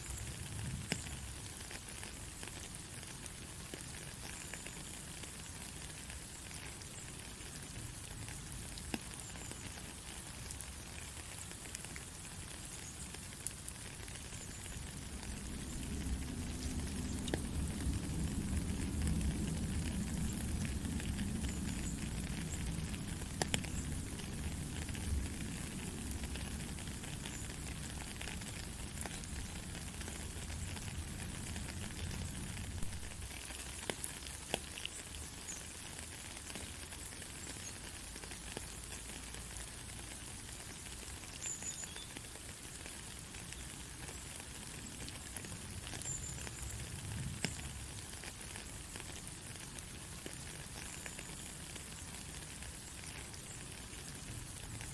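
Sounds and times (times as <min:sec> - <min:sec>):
raindrops ticking: 0:00.0 - 0:54.9
heavy rain hissing: 0:11.2 - 0:34.4.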